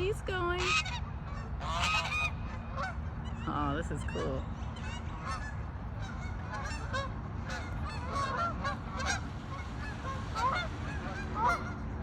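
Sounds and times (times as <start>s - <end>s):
steady low rumble: 0.0s - 12.0s
geese honking: 0.5s - 12.0s.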